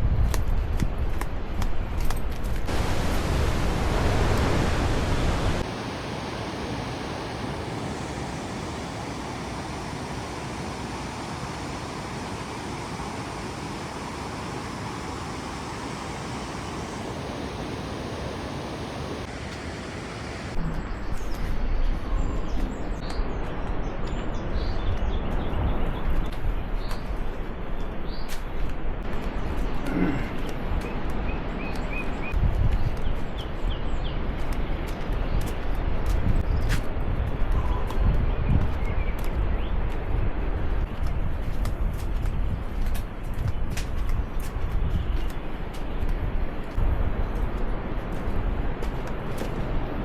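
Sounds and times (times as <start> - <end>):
waterfall rushing: 2.7 - 20.6
small birds chirping: 8.0 - 19.3
wind buffeting microphone: 30.5 - 50.0.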